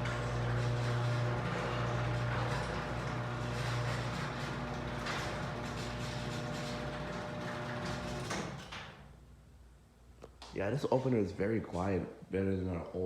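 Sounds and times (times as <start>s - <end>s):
garage door opener motor hum: 0.0s - 9.2s
garage door rolling rattle: 0.0s - 9.2s.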